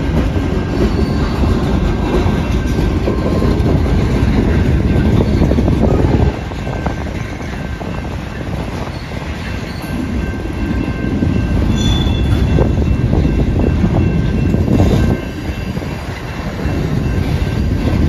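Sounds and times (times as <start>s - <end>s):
freight train rumbling and clattering: 0.0s - 18.0s.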